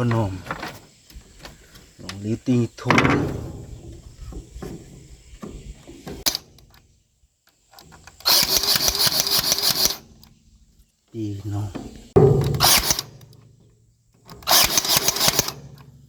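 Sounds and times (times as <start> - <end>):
knocks: 2.8 - 6.3, 11.7 - 13.1
sharp click: 6.2 - 6.8, 12.3 - 13.4
small motor with pulsing rattle: 8.2 - 10.0, 14.4 - 15.7.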